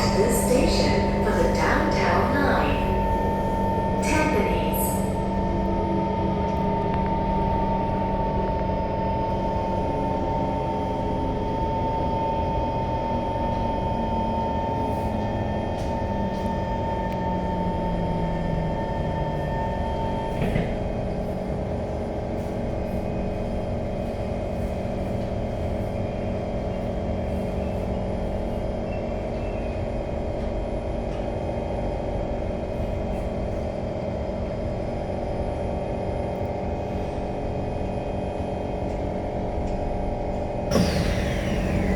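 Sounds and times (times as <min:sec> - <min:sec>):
metro train rumble: 0:00.0 - 0:41.9
high motor whine: 0:40.7 - 0:41.9.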